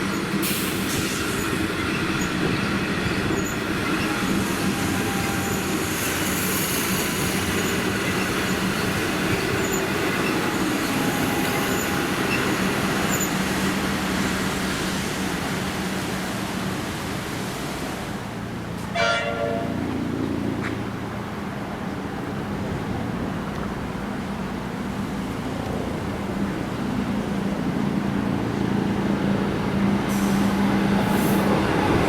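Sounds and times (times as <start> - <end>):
train passing on rails: 0.0 - 32.0
train horn toot: 4.0 - 5.8, 18.9 - 19.9.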